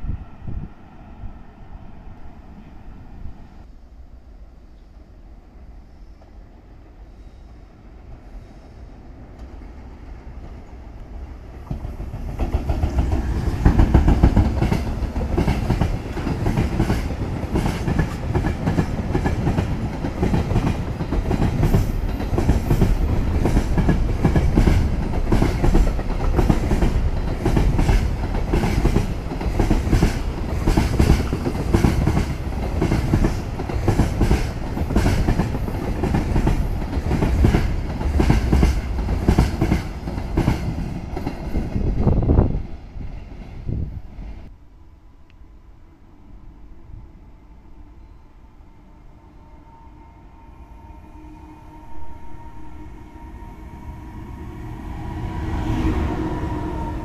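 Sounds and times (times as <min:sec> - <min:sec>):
electric locomotive passing: 0:00.0 - 0:57.0
wagons clickety-clack on rails: 0:11.6 - 0:41.7.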